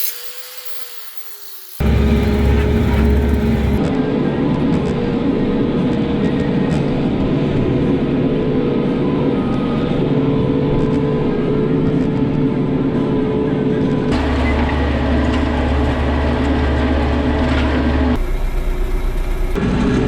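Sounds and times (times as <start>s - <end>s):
vehicle engine running: 1.8s - 3.8s.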